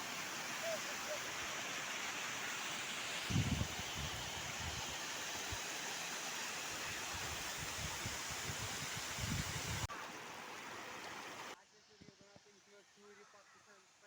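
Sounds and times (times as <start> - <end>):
stream water rushing: 0.0 - 11.6.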